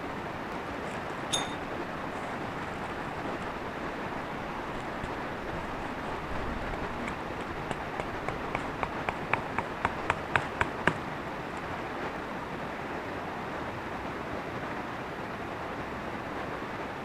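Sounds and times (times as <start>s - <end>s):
quick taps: 6.7s - 11.7s.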